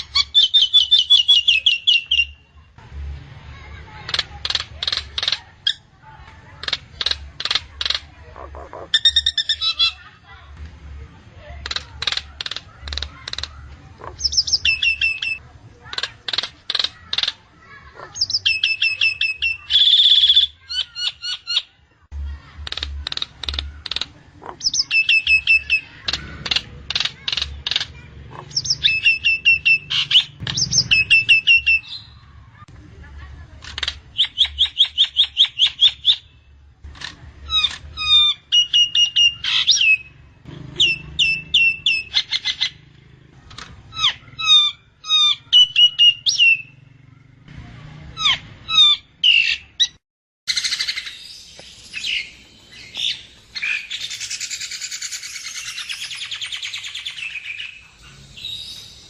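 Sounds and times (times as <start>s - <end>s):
myna calling: 3.6s - 10.2s, 22.2s - 32.6s.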